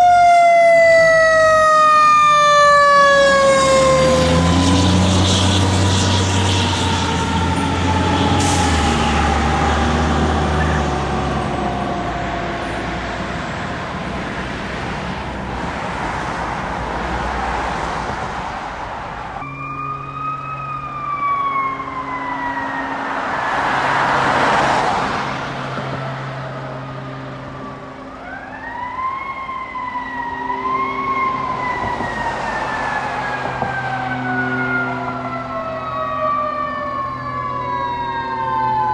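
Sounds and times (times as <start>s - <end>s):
fire engine siren: 0.0s - 38.9s
heavy truck engine: 0.9s - 38.8s
low horn blasts: 18.6s - 28.4s.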